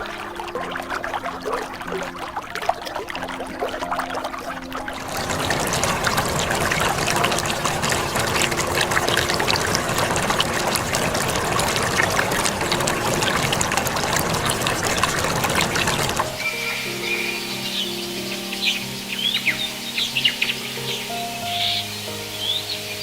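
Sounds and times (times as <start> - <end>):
stream trickling and splashing: 0.0 - 23.0.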